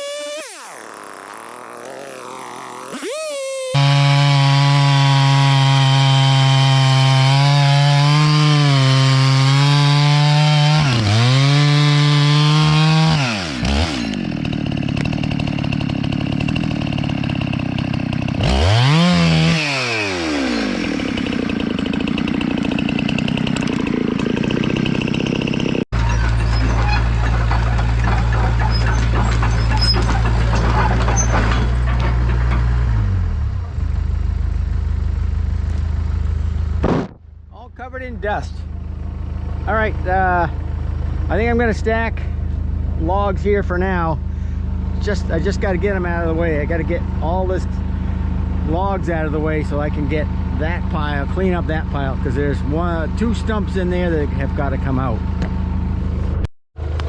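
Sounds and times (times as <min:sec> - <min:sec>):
chainsaw revving: 0:00.0 - 0:25.8
crackles: 0:00.4 - 0:03.4.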